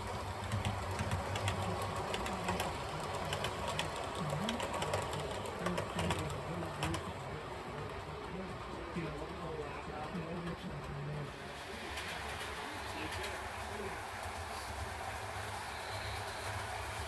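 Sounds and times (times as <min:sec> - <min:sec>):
model train motor whirring: 0:00.0 - 0:07.0, 0:11.5 - 0:17.0
wheels clicking over rail joints: 0:00.0 - 0:11.0.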